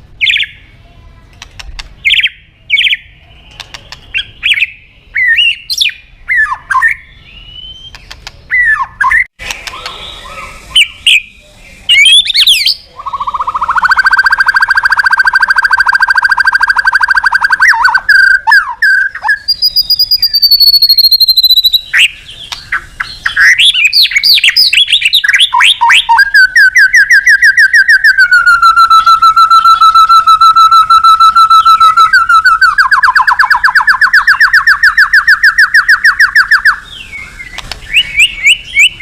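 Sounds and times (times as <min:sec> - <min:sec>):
bird buzzy trill: 0:01.6 - 0:39.0
songbird whistles and chirps: 0:02.0 - 0:39.0
bird high drawn-out whistle: 0:08.6 - 0:11.3, 0:11.9 - 0:22.1, 0:23.4 - 0:37.0.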